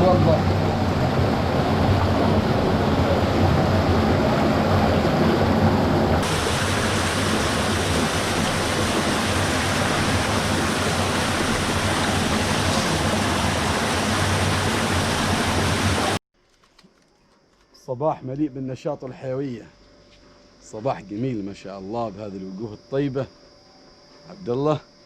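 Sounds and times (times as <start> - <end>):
water rushing: 0.0 - 16.2.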